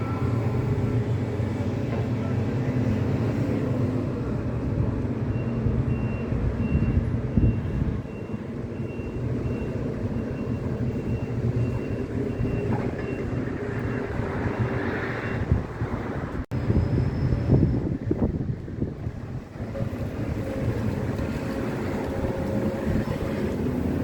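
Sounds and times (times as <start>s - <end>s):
diesel machinery running: 0.0s - 24.0s
reversing alarm beeping: 5.2s - 15.5s.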